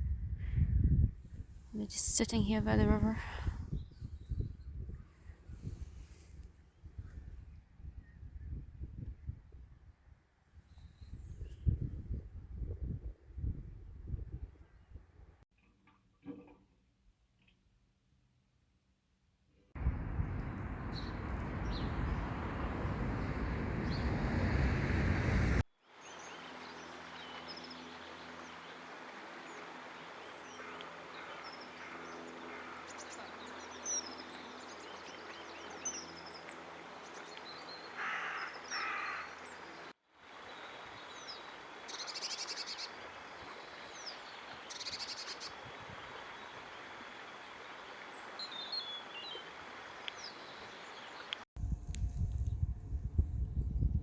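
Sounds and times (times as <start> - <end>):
loud rushing noise: 19.8 - 25.6
small birds chirping: 19.8 - 25.6
harsh crow-like calls: 38.0 - 39.4.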